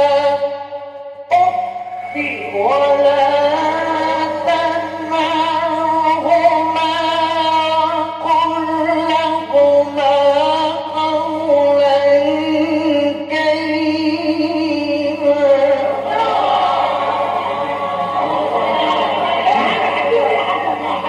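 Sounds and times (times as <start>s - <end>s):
low recording hum: 0.0s - 21.0s
man chanting recitation: 1.3s - 16.3s.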